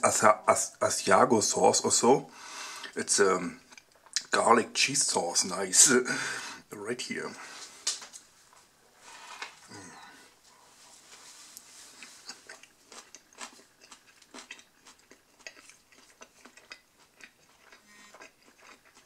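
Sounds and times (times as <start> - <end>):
person chewing food: 3.6 - 4.3, 9.1 - 19.0.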